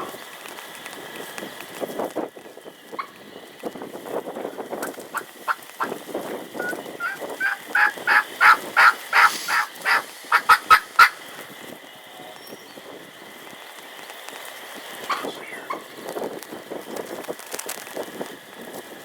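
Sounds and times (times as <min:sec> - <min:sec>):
wind noise: 0:00.0 - 0:11.9, 0:14.8 - 0:19.0
turkey hen yelping: 0:04.8 - 0:11.5, 0:15.1 - 0:16.0.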